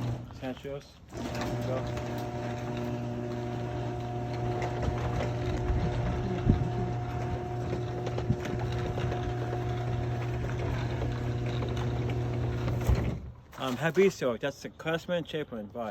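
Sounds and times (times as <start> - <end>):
garage door opener motor hum: 0.0 - 0.4, 1.1 - 13.2.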